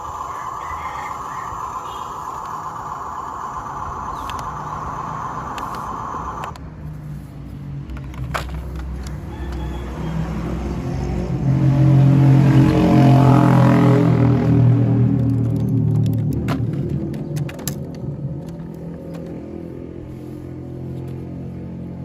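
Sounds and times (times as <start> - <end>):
electric motor and gear whine: 0.0 - 6.6.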